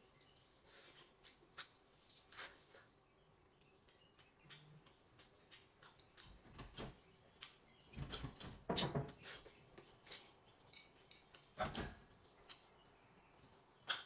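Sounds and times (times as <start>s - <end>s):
eating and food-handling clicks: 3.6s - 9.1s.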